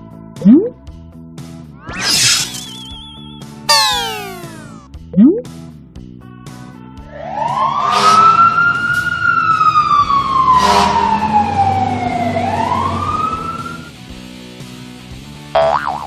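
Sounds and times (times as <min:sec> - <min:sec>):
cartoon siren wailing: 0:03.7 - 0:04.8, 0:07.3 - 0:13.9.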